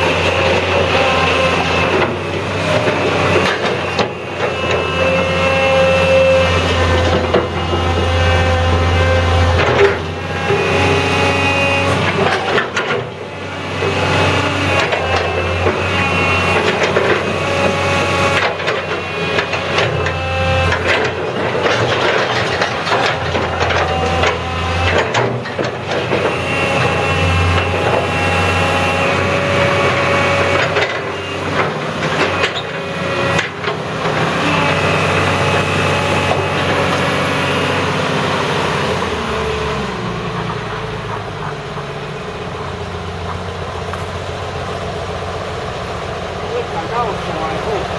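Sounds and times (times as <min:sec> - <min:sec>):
excavator diesel engine hum: 0:00.0 - 0:47.9
hydraulic whine: 0:00.0 - 0:47.9.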